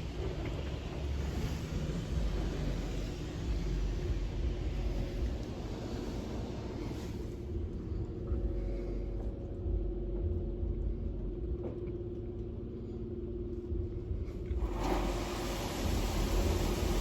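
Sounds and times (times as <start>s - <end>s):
car wash machine rumbling: 14.4s - 17.0s
spray hiss: 14.7s - 17.0s.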